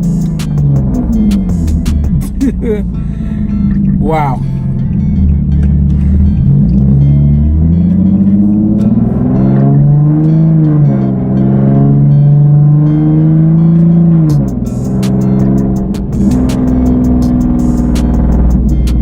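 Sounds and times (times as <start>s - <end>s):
car engine accelerating hard: 0.0s - 19.0s
exhaust crackles and pops: 13.8s - 19.0s.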